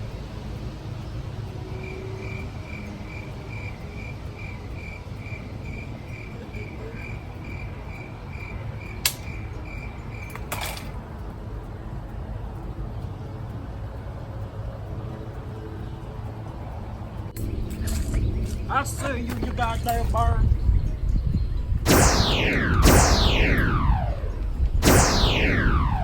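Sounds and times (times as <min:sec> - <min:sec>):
cricket chirping: 0:01.5 - 0:10.3
sharp click: 0:09.0 - 0:09.4, 0:21.9 - 0:26.0
steady low rumble: 0:10.9 - 0:26.0.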